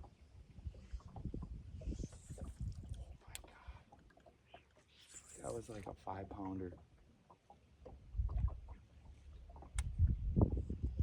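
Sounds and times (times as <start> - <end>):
low thumps and knocks on boat: 7.8 - 8.8.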